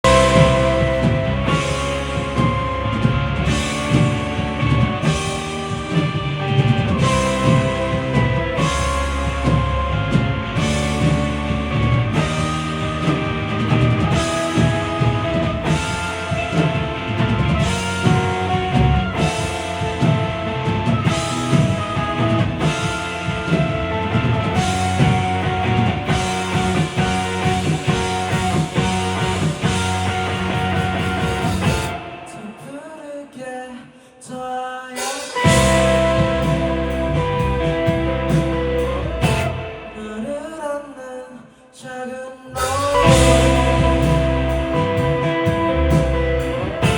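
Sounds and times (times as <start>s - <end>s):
live rock band: 0.0s - 33.6s, 34.9s - 40.9s, 42.5s - 46.9s
person singing: 39.2s - 46.9s.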